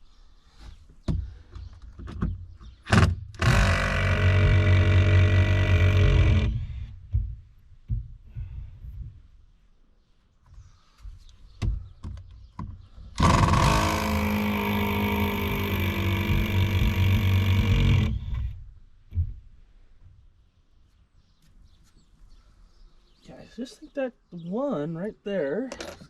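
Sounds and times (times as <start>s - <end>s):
power drill running: 3.4s - 6.9s, 13.2s - 18.6s.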